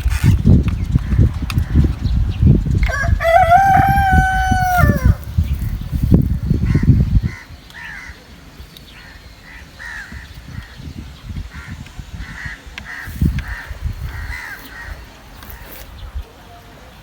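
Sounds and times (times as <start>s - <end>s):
crow cawing: 6.7s - 8.2s, 9.1s - 10.2s, 11.5s - 15.1s.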